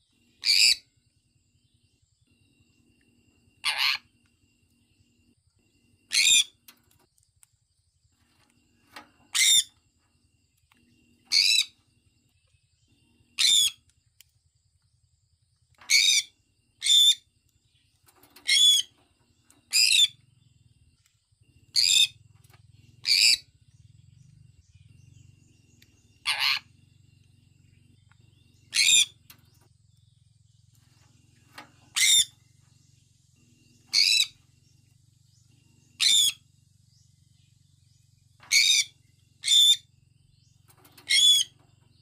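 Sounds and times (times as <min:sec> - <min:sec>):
parrot chirping: 0:00.4 - 0:00.8, 0:03.6 - 0:04.1, 0:06.1 - 0:06.6, 0:09.3 - 0:09.7, 0:11.3 - 0:11.8, 0:13.4 - 0:13.8, 0:15.9 - 0:17.2, 0:18.4 - 0:18.9, 0:23.0 - 0:23.5, 0:26.2 - 0:26.7, 0:28.6 - 0:29.2, 0:31.9 - 0:32.3, 0:33.9 - 0:34.4, 0:36.0 - 0:36.4, 0:38.5 - 0:39.9, 0:41.0 - 0:41.6.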